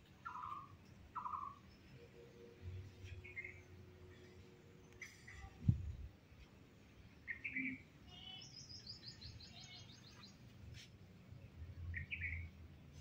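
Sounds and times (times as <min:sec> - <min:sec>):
birds singing: 0:00.2 - 0:02.2, 0:03.1 - 0:06.0, 0:07.2 - 0:10.5, 0:11.9 - 0:12.6.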